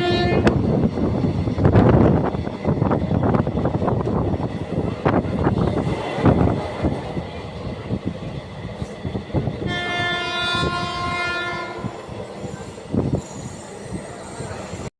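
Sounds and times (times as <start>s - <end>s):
train horn: 0.0s - 0.6s, 9.6s - 12.1s.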